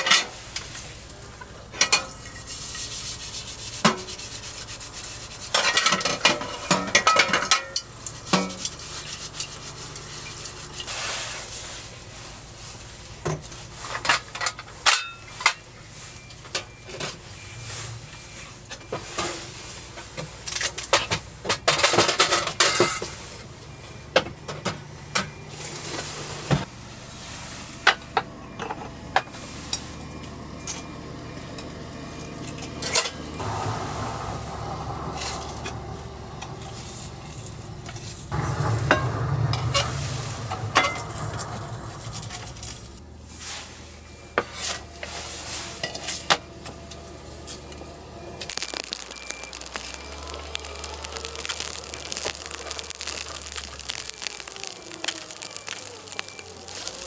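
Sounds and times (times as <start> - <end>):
food sizzling: 48.5 - 57.0.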